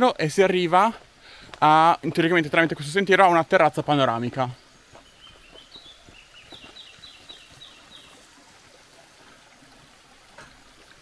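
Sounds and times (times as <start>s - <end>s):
faint footsteps on dirt trail: 0.0s - 9.4s
small bird chirping: 4.6s - 8.3s.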